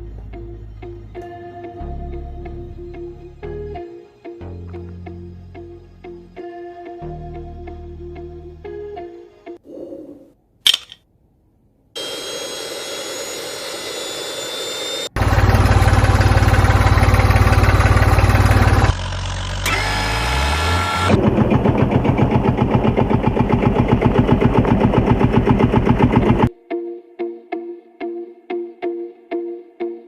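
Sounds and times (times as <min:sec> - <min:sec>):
engine running: 0:12.0 - 0:26.5.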